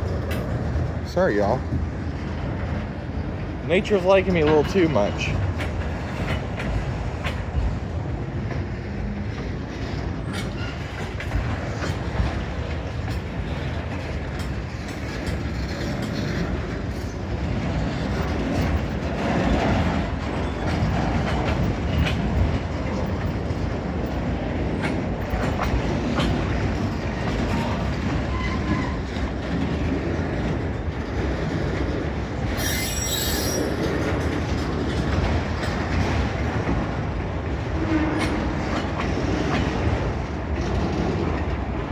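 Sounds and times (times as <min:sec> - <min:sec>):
train wheels rumbling on rails: 0:00.0 - 0:41.9
wheels clicking over rail joints: 0:00.0 - 0:41.9
high-pitched wheel squeal: 0:32.6 - 0:34.0.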